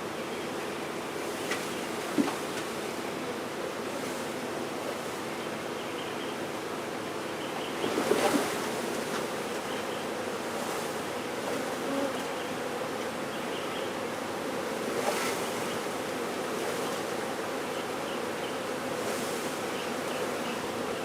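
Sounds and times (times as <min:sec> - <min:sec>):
bees buzzing: 0:07.8 - 0:21.0.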